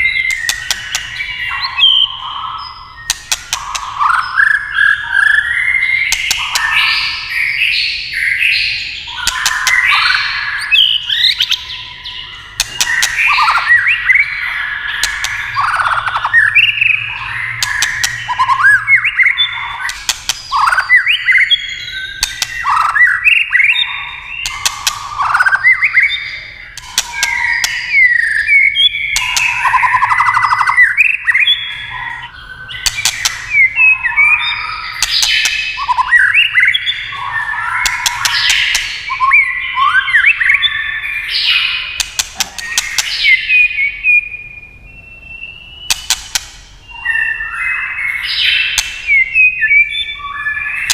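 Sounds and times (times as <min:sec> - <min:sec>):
bird singing whistled phrases: 0:00.0 - 0:46.2, 0:46.8 - 0:50.9
bird clicking calls: 0:00.2 - 0:02.4, 0:03.0 - 0:04.6, 0:06.1 - 0:07.3, 0:09.1 - 0:11.7, 0:12.6 - 0:23.8, 0:24.4 - 0:40.6, 0:41.6 - 0:43.8, 0:45.8 - 0:46.8, 0:48.3 - 0:49.8.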